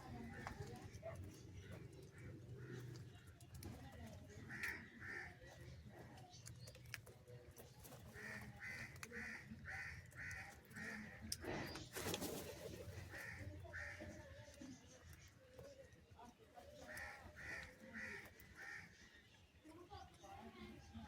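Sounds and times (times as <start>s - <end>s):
crow cawing: 8.2s - 11.1s.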